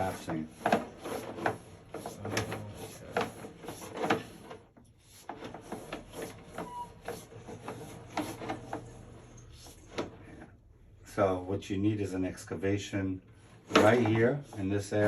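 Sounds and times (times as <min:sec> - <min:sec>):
mechanical clicks and rubbing: 0:00.0 - 0:10.5.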